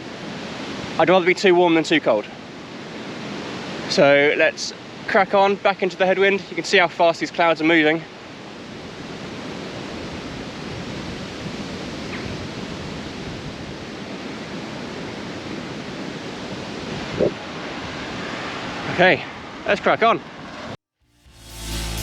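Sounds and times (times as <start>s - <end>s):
gusty wind on microphone: 8.5s - 19.6s.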